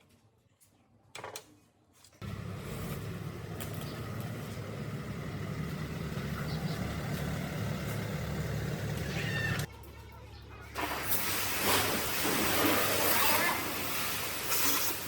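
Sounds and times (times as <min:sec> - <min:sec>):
pressure washer motor humming: 0:02.2 - 0:09.7.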